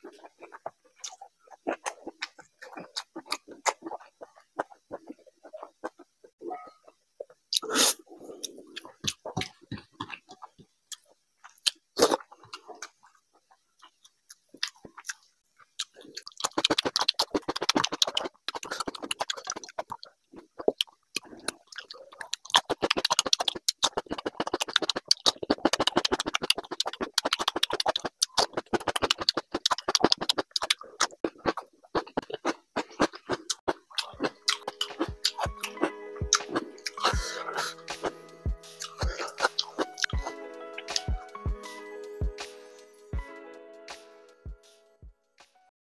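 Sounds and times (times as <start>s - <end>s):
crunching raw cucumber: 0.0s - 6.1s, 13.8s - 38.1s
mouth clicks and smacks: 0.0s - 41.3s.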